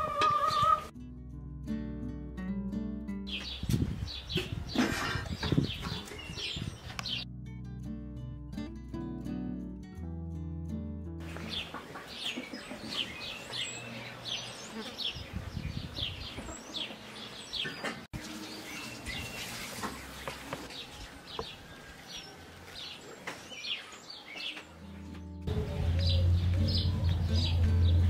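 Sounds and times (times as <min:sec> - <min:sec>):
small birds chirping: 0:03.3 - 0:07.2, 0:11.2 - 0:28.0.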